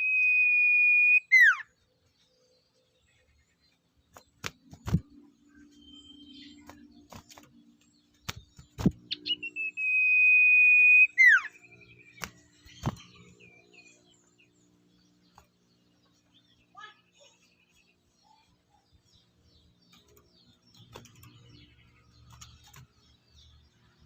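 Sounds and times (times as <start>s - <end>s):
bird long whistle: 0.0s - 1.6s, 9.2s - 11.6s.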